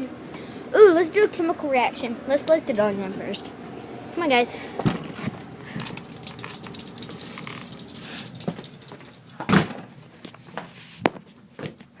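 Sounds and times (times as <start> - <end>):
dogs' paws pattering: 5.2 - 9.5.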